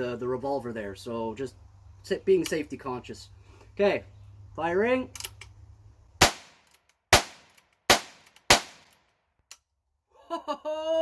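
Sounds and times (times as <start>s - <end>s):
gunshots: 6.2s - 9.0s.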